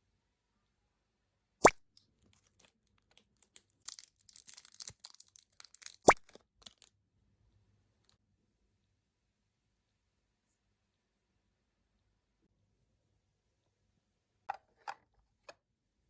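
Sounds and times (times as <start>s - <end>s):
light taps and crinkling: 2.2s - 6.9s
plastic toy pieces clicking: 2.4s - 6.9s.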